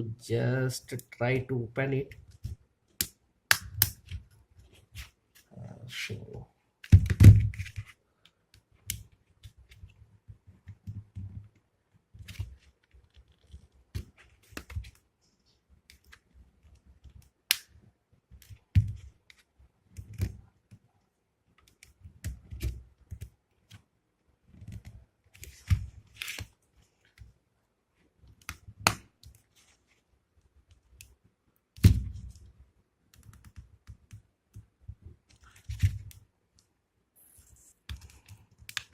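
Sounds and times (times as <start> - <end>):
plastic clicks and snaps: 37.9 - 38.9.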